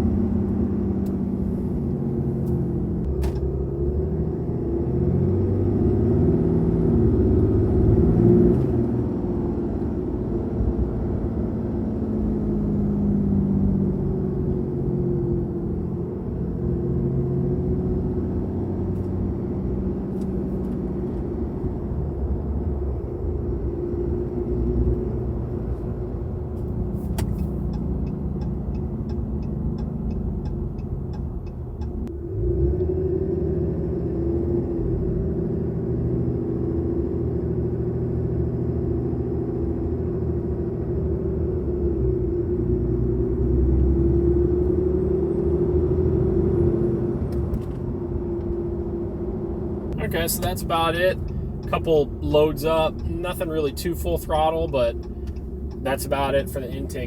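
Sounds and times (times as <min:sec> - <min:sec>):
diesel truck engine droning: 0:00.0 - 0:57.0.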